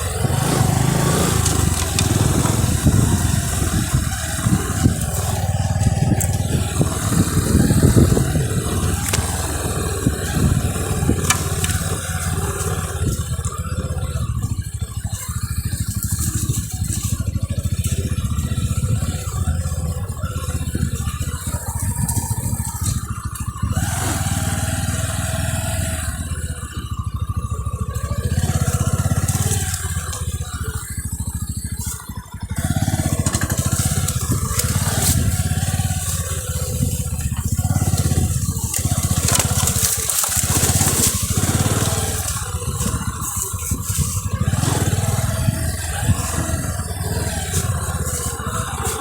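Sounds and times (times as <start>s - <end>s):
motorcycle engine running: 0.0s - 49.0s
rattling and clatter: 0.0s - 49.0s.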